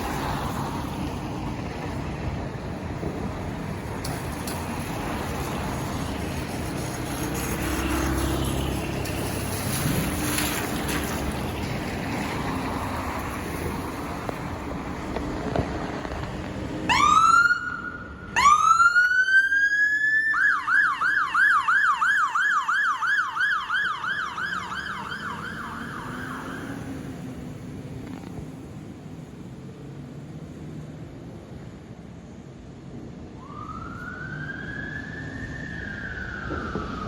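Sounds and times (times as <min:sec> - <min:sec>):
street traffic noise: 0:00.0 - 0:37.0
emergency siren wailing and yelping: 0:16.9 - 0:27.0, 0:33.4 - 0:37.0.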